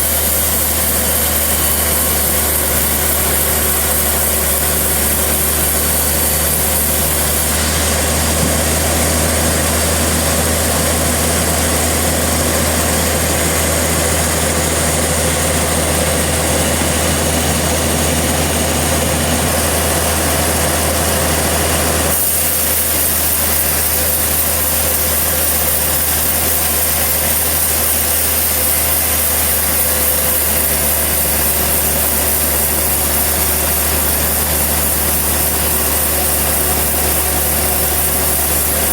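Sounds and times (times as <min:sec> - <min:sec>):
sawmill engine humming: 0:00.0 - 0:38.9.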